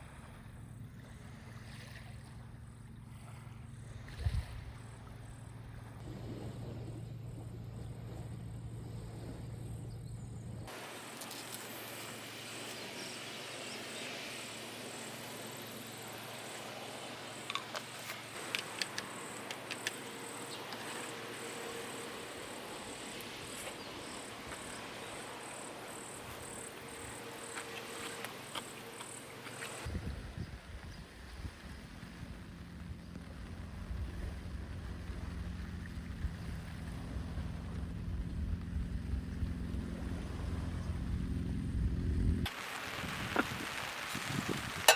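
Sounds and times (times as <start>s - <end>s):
insect chirping: 10.7s - 29.9s
steady rain: 42.5s - 44.9s.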